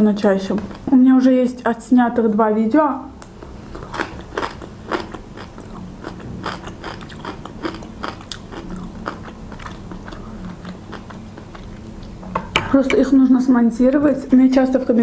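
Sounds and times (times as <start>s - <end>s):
woman chewing crunchy food: 3.4s - 12.2s.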